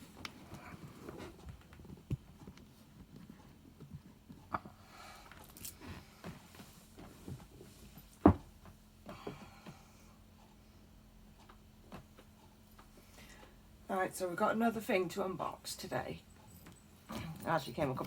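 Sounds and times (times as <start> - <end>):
knocks and light thumps: 5.8 - 9.8.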